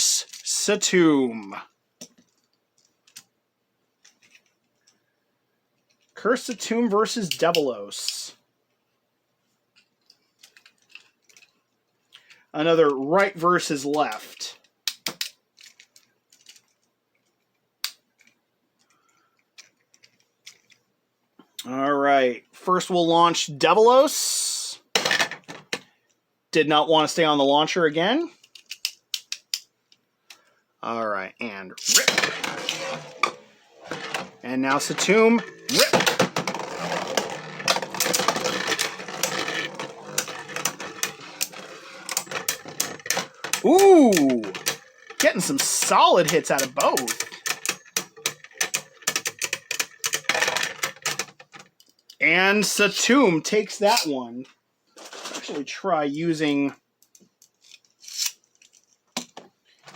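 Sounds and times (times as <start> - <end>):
spinning tops whirring: 31.8 - 50.6.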